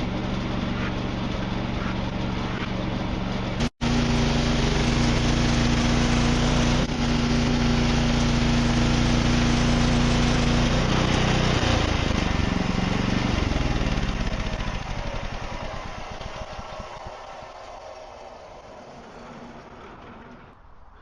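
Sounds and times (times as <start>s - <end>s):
sawmill engine running: 0.0s - 20.7s.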